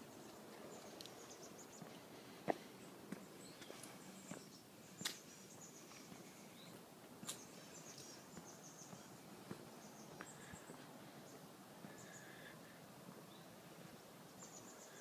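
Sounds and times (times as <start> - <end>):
faint high bird chirps: 14.3 - 15.0.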